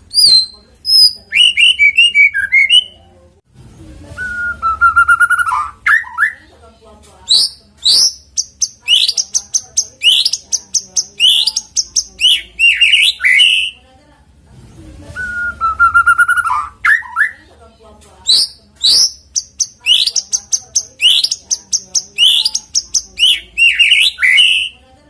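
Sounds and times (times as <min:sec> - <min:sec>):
bird singing: 0:00.1 - 0:03.0, 0:07.3 - 0:13.8, 0:15.3 - 0:17.4, 0:18.2 - 0:24.8.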